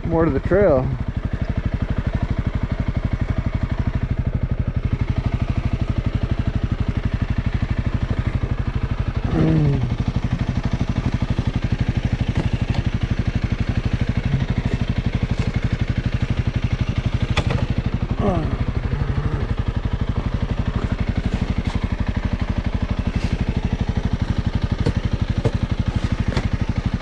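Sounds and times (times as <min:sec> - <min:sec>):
motorcycle engine idling: 0:00.0 - 0:27.0.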